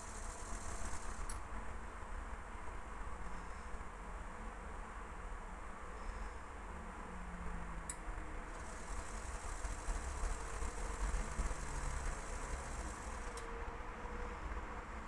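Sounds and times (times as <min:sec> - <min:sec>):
washing machine spinning: 0:00.0 - 0:01.4, 0:08.5 - 0:13.4
faint ticks: 0:08.6 - 0:13.5.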